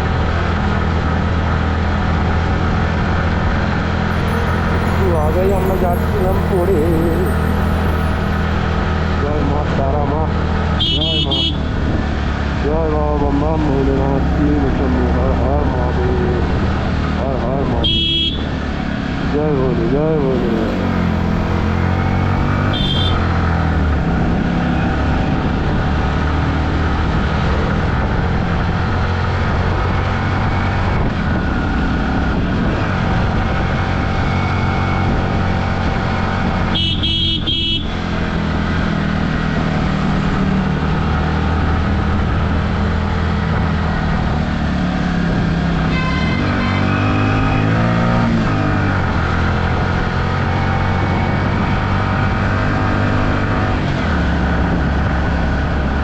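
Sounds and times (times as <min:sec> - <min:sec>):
vehicle horn honking: 0:10.8 - 0:11.8, 0:17.8 - 0:18.5, 0:21.9 - 0:23.6, 0:36.7 - 0:38.0, 0:45.8 - 0:47.7.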